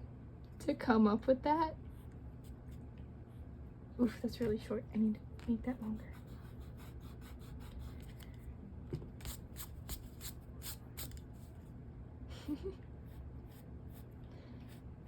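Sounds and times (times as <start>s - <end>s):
pencil scratching on paper: 5.8s - 8.2s, 9.2s - 11.2s.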